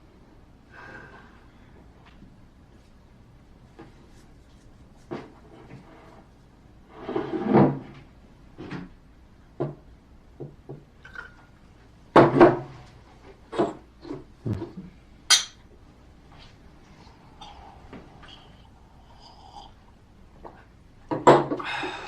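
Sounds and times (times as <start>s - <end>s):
glasses and dishes clinking: 15.3s - 15.6s.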